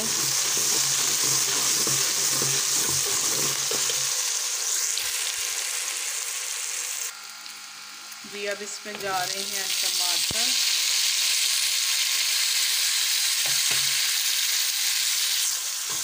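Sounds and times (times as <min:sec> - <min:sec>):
metal ladle scraping pot: 0:00.0 - 0:04.1
onions sizzling in oil: 0:00.0 - 0:16.0.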